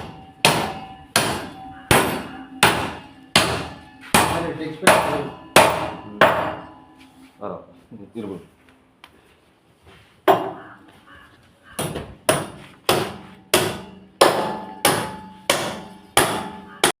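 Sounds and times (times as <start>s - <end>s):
hammer strikes with faint ring: 0.0s - 7.1s, 11.8s - 16.7s.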